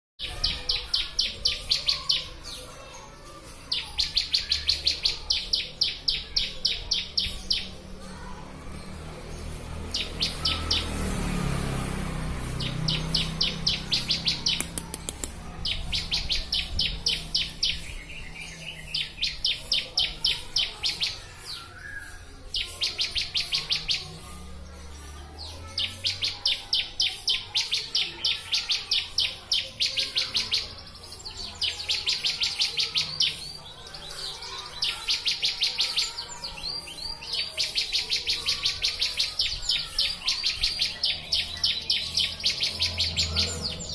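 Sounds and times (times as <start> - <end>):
bird trilling chipping notes: 12.5 - 25.0.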